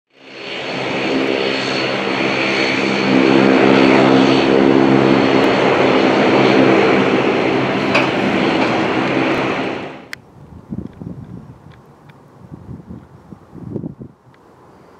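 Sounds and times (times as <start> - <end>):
jet engines roaring: 0.1 - 10.2
high jet engine whine: 0.1 - 10.3.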